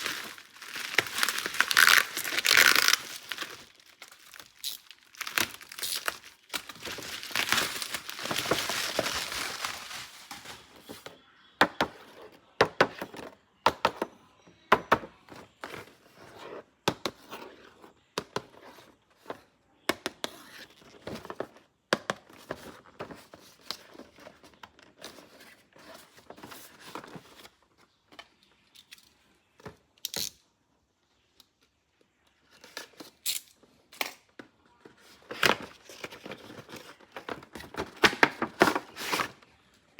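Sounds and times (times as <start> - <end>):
packaging tearing and crinkling: 0.0 - 10.9.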